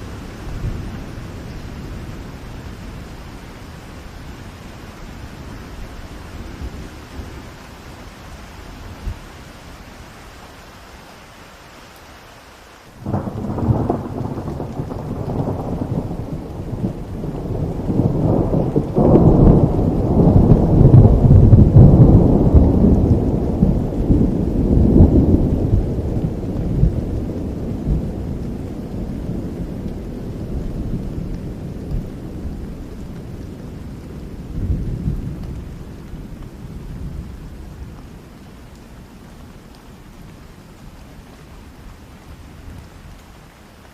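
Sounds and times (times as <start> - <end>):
steady rain: 0.0 - 43.9
thunder rumbling: 13.0 - 43.2.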